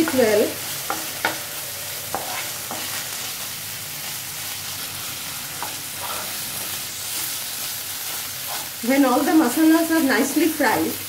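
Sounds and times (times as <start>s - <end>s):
spatula scraping and tapping pan: 0.0s - 1.5s, 2.1s - 3.1s, 5.6s - 7.3s, 8.1s - 8.8s
onion sizzling in hot oil: 0.0s - 11.0s.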